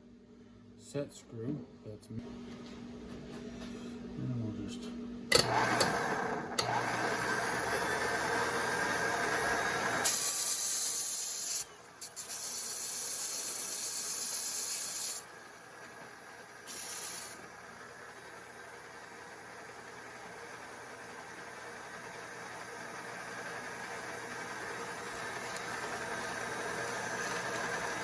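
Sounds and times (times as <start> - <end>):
pressurised gas hissing: 16.6 - 17.5.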